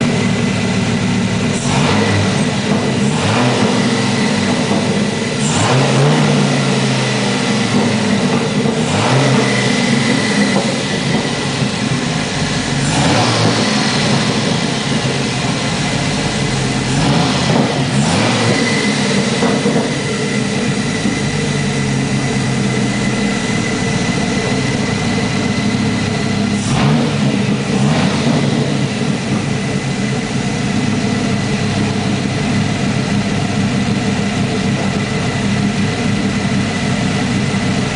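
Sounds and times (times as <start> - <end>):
car engine idling and revving: 0.0 - 37.9
thin steady whine: 17.7 - 27.8.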